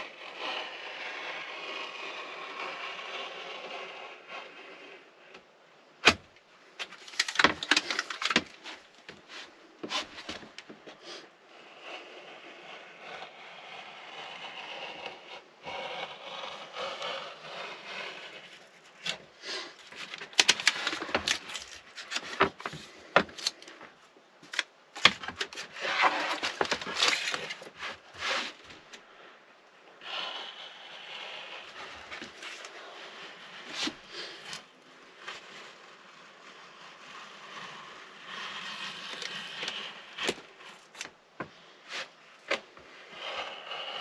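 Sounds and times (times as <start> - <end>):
foil sheets scraping and crinkling: 6.8 - 14.0, 14.6 - 23.8, 24.4 - 28.9, 31.0 - 41.2.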